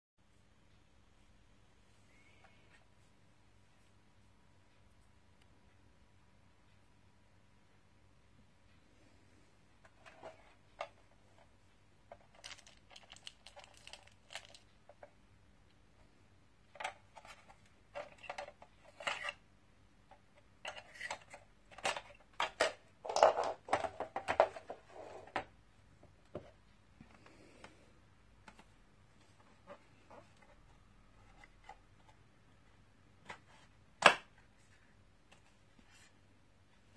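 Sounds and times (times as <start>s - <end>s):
hard objects clicking and clattering: 12.1s - 15.1s, 20.6s - 25.5s.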